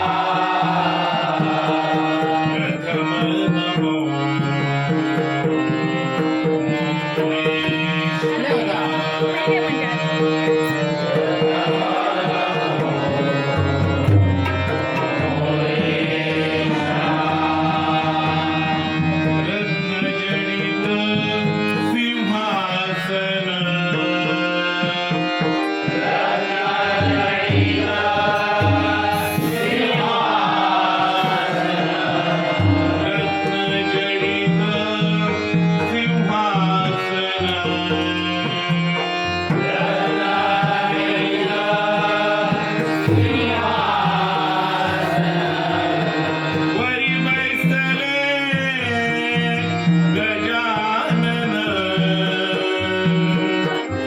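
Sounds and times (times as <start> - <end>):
harmonium: 0.0 - 54.0
person singing: 7.4 - 13.8
hand drums beating: 13.6 - 15.6.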